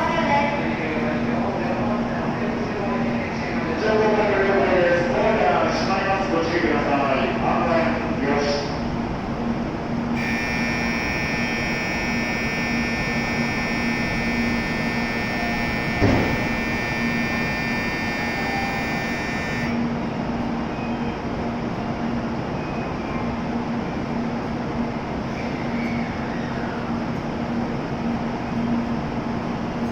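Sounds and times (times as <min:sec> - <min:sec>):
low train hum: 0:00.0 - 0:29.9
electronic bell ringing: 0:10.2 - 0:19.8
sharp knock: 0:16.0 - 0:16.4.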